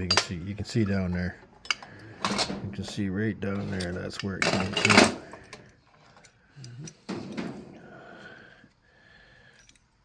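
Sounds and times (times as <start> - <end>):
metal part clunking and scraping: 0.0 - 7.8.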